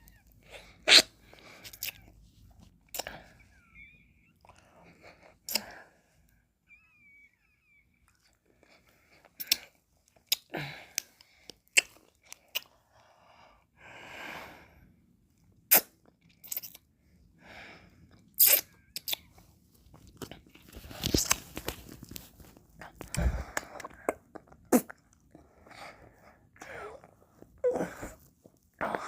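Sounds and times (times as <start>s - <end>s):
wet mouth smacks and clicks: 11.7s - 12.7s, 15.7s - 16.8s, 18.4s - 19.3s.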